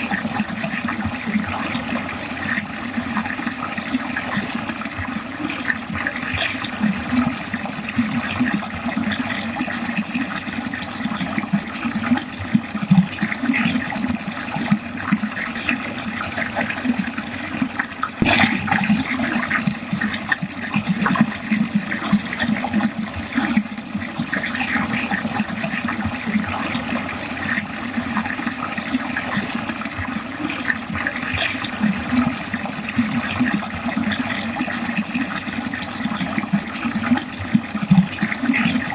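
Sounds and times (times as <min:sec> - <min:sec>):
water gurgling down a drain: 0:00.0 - 0:38.9
loud water splash: 0:18.2 - 0:19.7.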